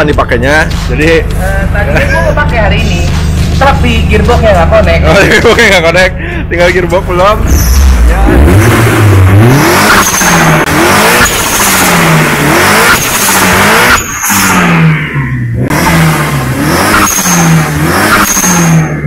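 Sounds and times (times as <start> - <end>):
car engine revving: 0.0 - 5.8, 6.6 - 19.0.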